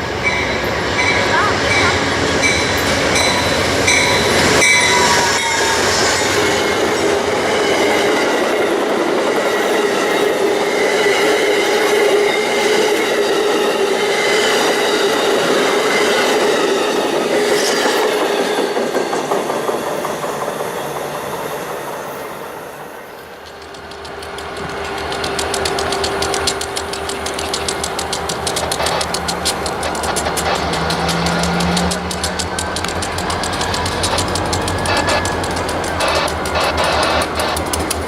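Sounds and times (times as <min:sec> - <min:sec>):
wheels squealing: 0:00.0 - 0:18.6, 0:23.1 - 0:38.0
train rolling on rails: 0:00.0 - 0:38.0.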